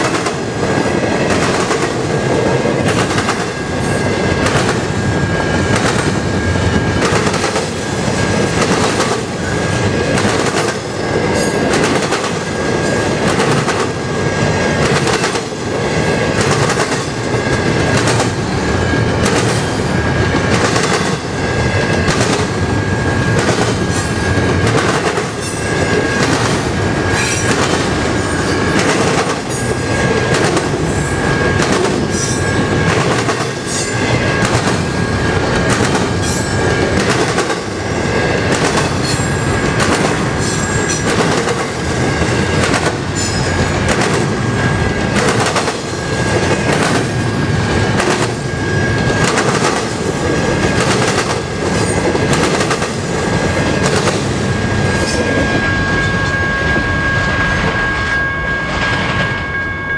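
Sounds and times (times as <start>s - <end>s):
train wheels clacking on rails: 0.0s - 59.4s
train rumbling: 0.0s - 59.9s
thin high tone: 54.9s - 59.9s.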